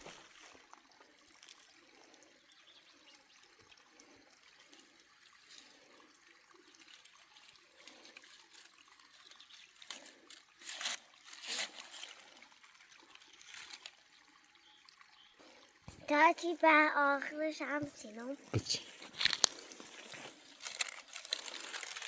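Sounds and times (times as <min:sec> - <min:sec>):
faint trickling water: 0:00.0 - 0:22.0.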